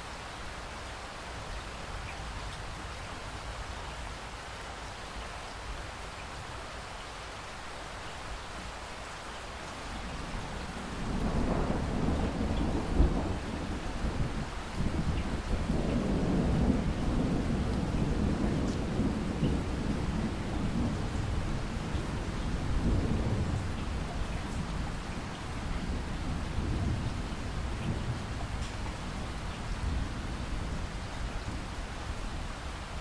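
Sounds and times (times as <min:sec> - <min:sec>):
rain falling: 0:00.0 - 0:33.0
thunder rumbling: 0:10.0 - 0:31.7.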